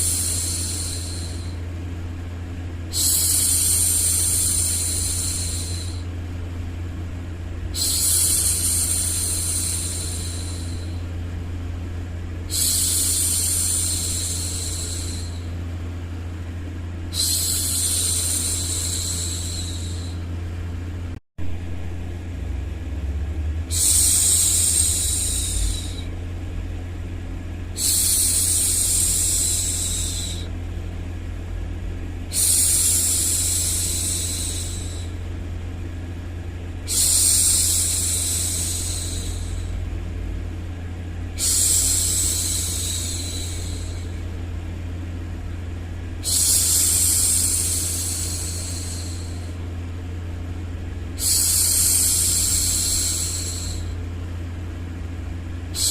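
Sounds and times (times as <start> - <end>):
white noise hum: 0.0 - 55.9
woman shushing: 17.1 - 20.2, 23.7 - 26.1, 27.8 - 30.5, 32.3 - 35.2, 36.9 - 39.8, 41.4 - 44.1, 51.2 - 54.0.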